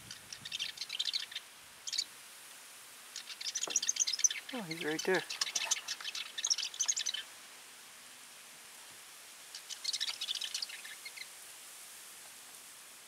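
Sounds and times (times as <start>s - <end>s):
songbird chattering: 0.1s - 2.0s, 3.1s - 7.2s.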